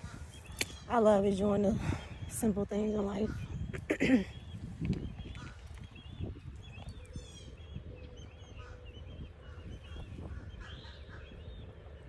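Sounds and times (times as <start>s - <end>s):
small birds chirping: 0.0s - 12.0s
wind rumbling on microphone: 0.0s - 12.0s.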